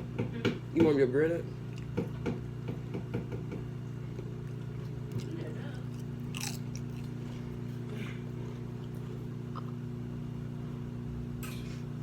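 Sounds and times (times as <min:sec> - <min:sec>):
electrical appliance hum: 0:00.0 - 0:12.0
chewing chips crunches: 0:04.2 - 0:09.8.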